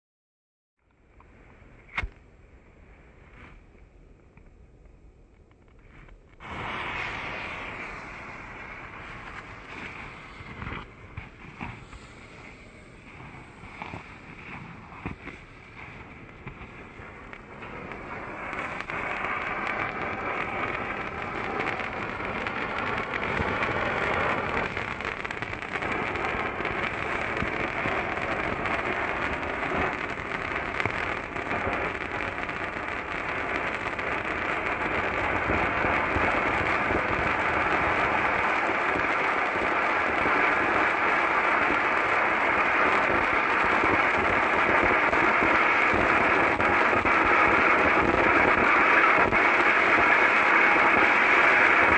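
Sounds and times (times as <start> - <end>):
fountain firework hissing crackle: 5.8 - 51.9.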